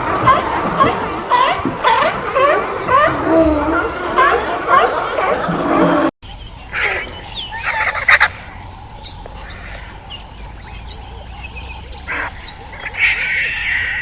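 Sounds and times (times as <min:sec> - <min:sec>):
poultry calling: 0:06.6 - 0:14.0.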